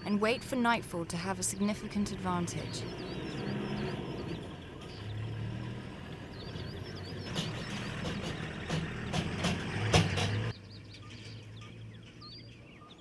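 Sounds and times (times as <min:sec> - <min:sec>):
small birds chirping: 0:00.0 - 0:13.0
vehicle engine idling: 0:00.0 - 0:13.0
sharp clicks or knocks: 0:07.3 - 0:10.5.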